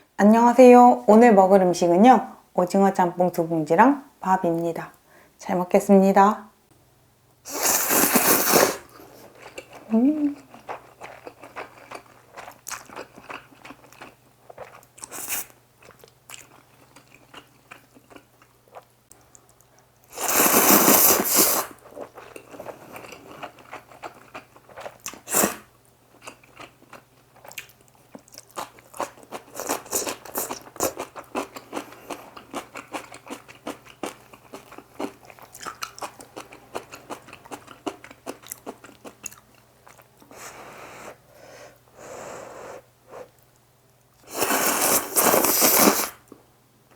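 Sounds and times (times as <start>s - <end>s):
wet chewing and smacking: 9.4s - 15.1s, 26.2s - 40.2s.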